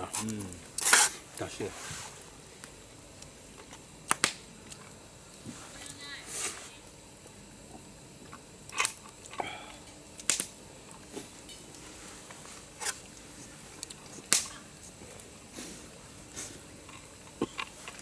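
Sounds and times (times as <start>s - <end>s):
low steady background noise: 0.0s - 18.0s
sharp clicks and pops: 2.6s - 5.0s, 8.2s - 9.4s, 10.2s - 11.1s, 13.8s - 14.6s.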